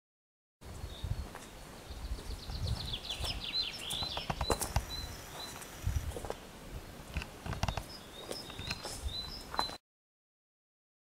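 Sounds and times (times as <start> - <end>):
songbird singing: 0.6 - 9.8
sharp rustling clicks: 4.0 - 6.4, 7.1 - 8.9.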